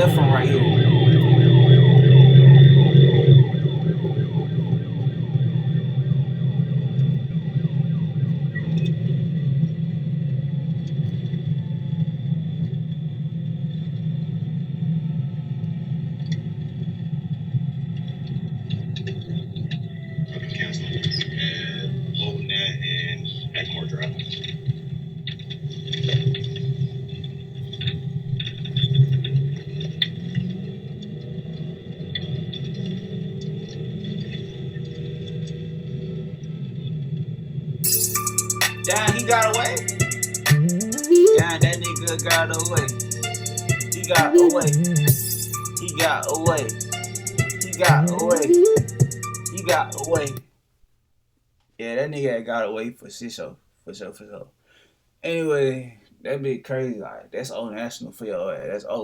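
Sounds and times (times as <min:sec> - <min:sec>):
police siren yelping: 0:00.0 - 0:09.1, 0:37.8 - 0:50.4
held whine: 0:00.0 - 0:50.4.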